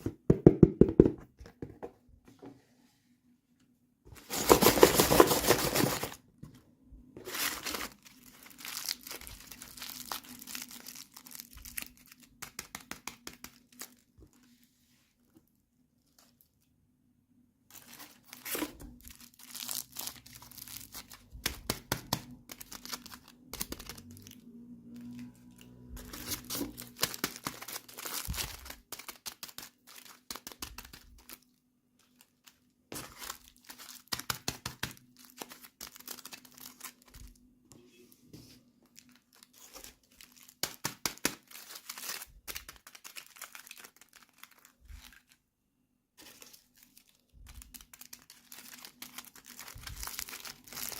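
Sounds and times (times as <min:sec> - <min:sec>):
packaging crinkling and tearing: 0:04.2 - 0:06.2, 0:07.2 - 0:14.5, 0:17.7 - 0:37.4, 0:38.8 - 0:45.4, 0:46.2 - 0:50.9.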